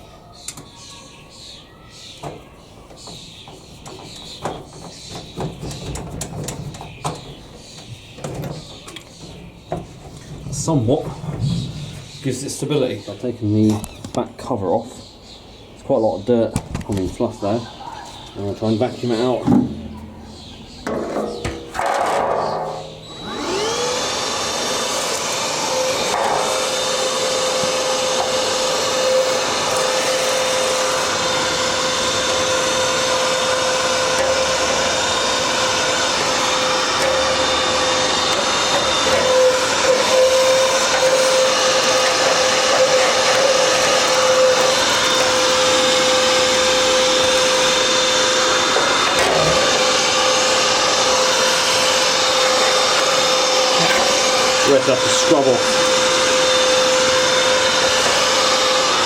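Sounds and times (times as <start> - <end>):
vacuum cleaner whining: 18.4 - 59.0.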